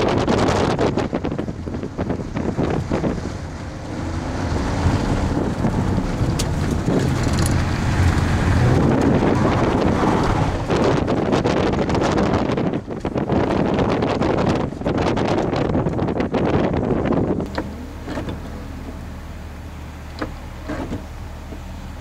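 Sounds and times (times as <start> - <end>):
steady rushing noise: 0.0 - 22.0
car engine revving: 0.6 - 12.6, 17.2 - 22.0.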